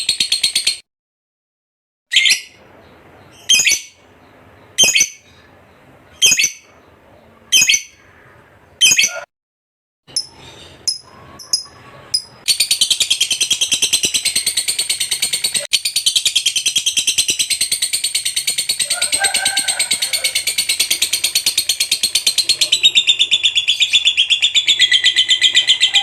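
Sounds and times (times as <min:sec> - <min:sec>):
lovebird sharp high calls: 0:02.1 - 0:02.6, 0:03.3 - 0:04.0, 0:04.7 - 0:05.5, 0:06.2 - 0:06.7, 0:07.5 - 0:08.1, 0:08.8 - 0:09.3
lovebird rapid chattering trill: 0:03.3 - 0:04.0, 0:04.6 - 0:05.3, 0:06.2 - 0:06.7, 0:07.5 - 0:08.0, 0:10.2 - 0:26.0.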